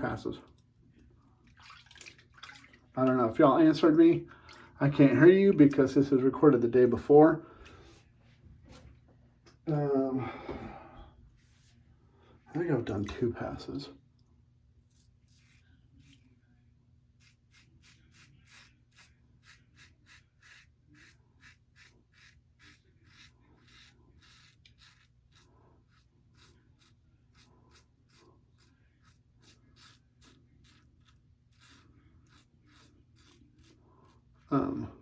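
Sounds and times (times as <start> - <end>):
razor scraping stubble: 14.9 - 16.3, 17.2 - 34.6.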